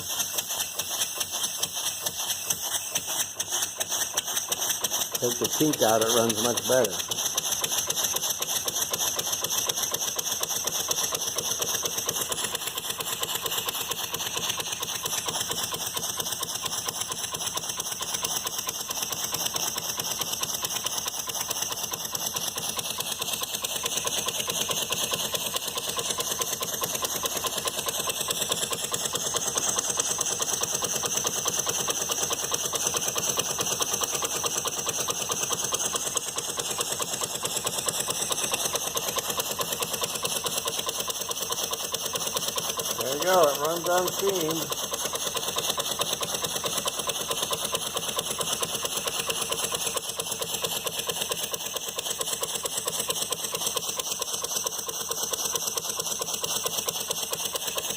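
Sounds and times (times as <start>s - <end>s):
steam hiss: 0.0s - 21.2s
model steam engine clattering: 0.0s - 57.9s.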